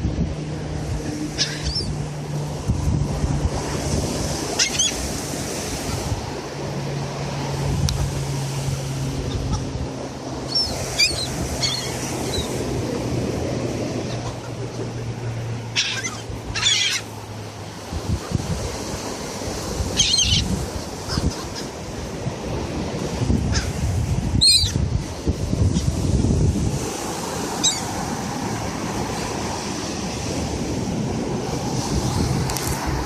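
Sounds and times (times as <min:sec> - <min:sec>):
surf: 0:00.0 - 0:33.0
wind noise: 0:00.0 - 0:33.0
seagulls calling: 0:01.3 - 0:02.0, 0:04.5 - 0:05.1, 0:09.1 - 0:09.8, 0:10.4 - 0:12.7, 0:14.0 - 0:17.2, 0:19.8 - 0:21.9, 0:23.4 - 0:23.8, 0:24.4 - 0:24.8, 0:27.5 - 0:28.0.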